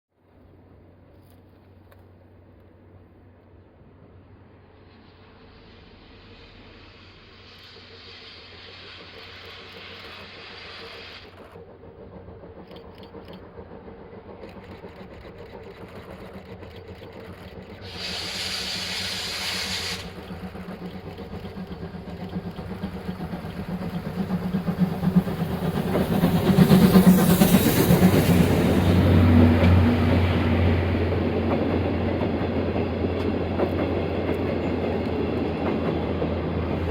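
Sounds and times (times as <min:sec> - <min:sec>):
steam locomotive exhaust beats: 0:04.0 - 0:36.9
steam hiss: 0:04.3 - 0:16.2, 0:17.7 - 0:31.2.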